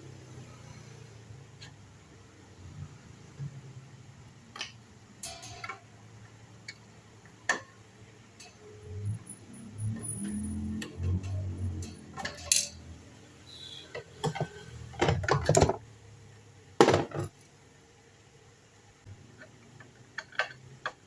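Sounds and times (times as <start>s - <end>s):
metal tools clinking on work surface: 9.8s - 12.8s.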